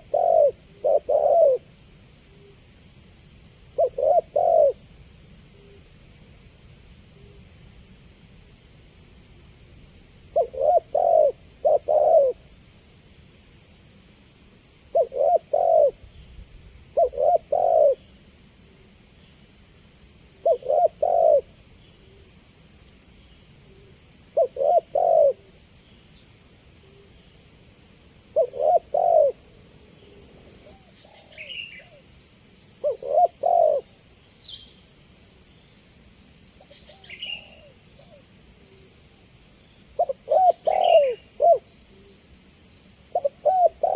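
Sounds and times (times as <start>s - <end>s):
dove cooing: 0.0s - 1.7s, 3.8s - 4.8s, 10.3s - 12.5s, 14.9s - 16.0s, 17.0s - 18.0s, 20.4s - 21.5s, 24.3s - 25.6s, 28.3s - 29.4s, 30.3s - 32.0s, 32.8s - 34.0s, 40.0s - 41.7s, 43.1s - 43.9s
insects droning: 0.0s - 43.9s.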